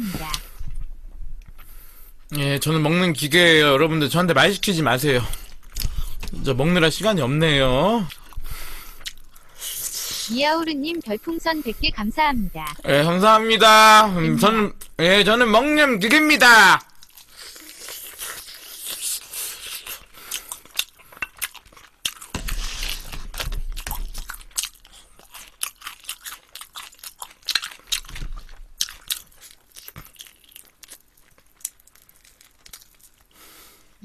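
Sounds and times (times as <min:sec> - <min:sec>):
chewing crunchy food: 0:05.2 - 0:06.4, 0:07.8 - 0:11.1, 0:16.8 - 0:34.0.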